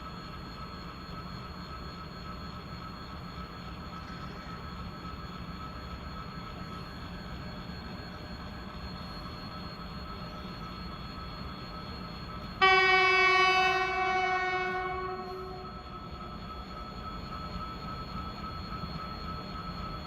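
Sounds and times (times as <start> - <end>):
train horn: 12.6 - 15.9.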